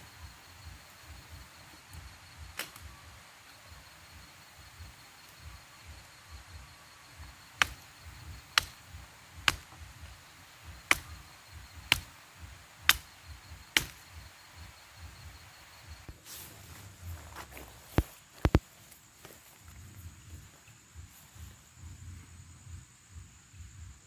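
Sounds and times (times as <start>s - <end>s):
wood being chopped: 2.5s - 2.9s, 7.5s - 9.9s, 10.7s - 11.2s, 11.8s - 12.2s, 12.8s - 14.2s.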